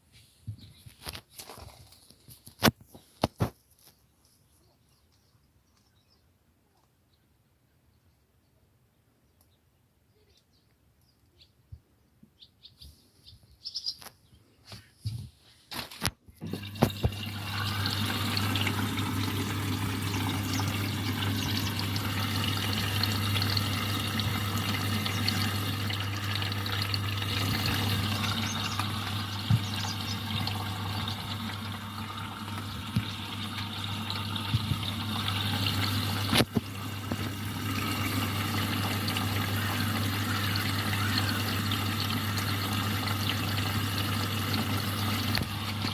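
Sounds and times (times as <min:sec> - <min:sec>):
water rushing into drum: 0:16.4 - 0:45.9
water valve humming: 0:16.4 - 0:45.9.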